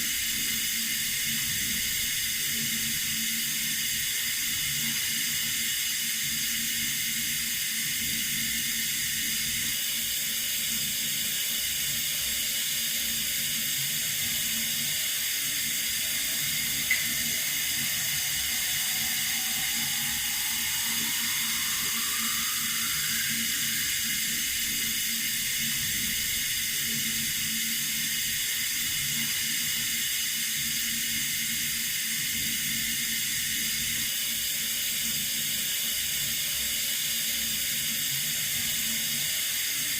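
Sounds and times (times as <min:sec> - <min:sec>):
water running from a tap: 0:00.1 - 0:34.0
faint low hum: 0:14.2 - 0:26.4.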